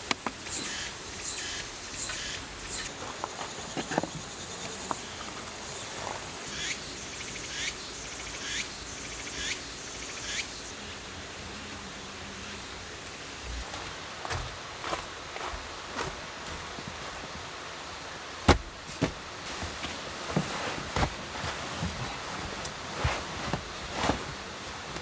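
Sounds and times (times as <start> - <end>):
steady hiss: 0.0 - 18.5
insect calling: 0.2 - 13.7.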